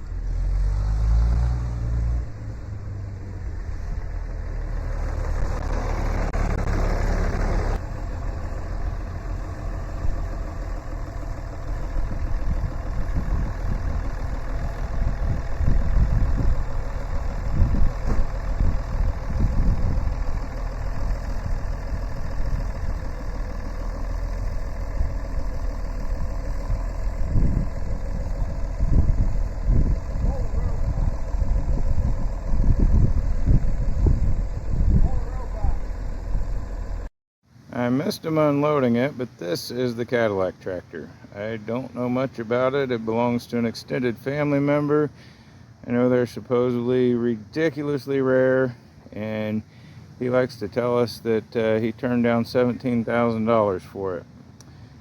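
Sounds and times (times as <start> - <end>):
tractor engine running: 0.0 - 37.1.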